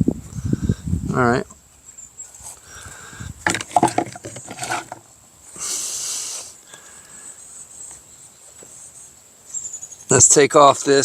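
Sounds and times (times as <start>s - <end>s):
crickets trilling: 0.3s - 11.0s
short hissing rush: 5.6s - 6.6s.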